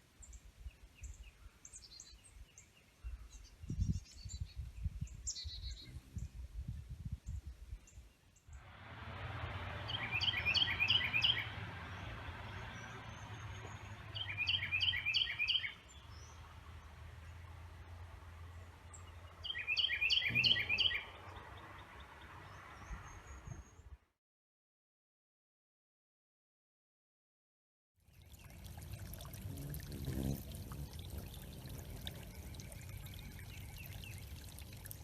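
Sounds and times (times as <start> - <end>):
songbird singing: 0.2 - 8.6, 9.7 - 17.7, 18.4 - 24.0, 28.1 - 35.0
background hiss: 28.4 - 35.0.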